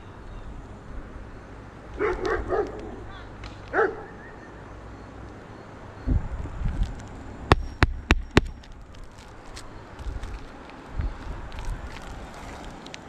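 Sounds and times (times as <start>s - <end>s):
dog barking: 2.0s - 3.1s, 3.7s - 4.3s
sharp knocks: 7.5s - 8.8s.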